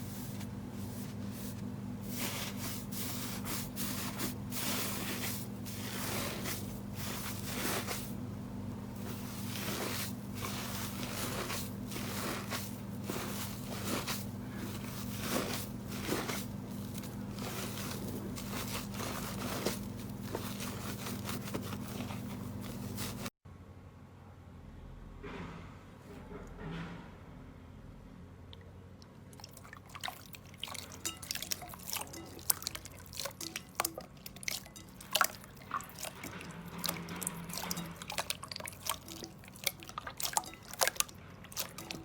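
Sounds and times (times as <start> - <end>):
slime squelching and crackling: 0.0 - 23.3, 29.3 - 42.0
steady low hum: 0.0 - 23.3.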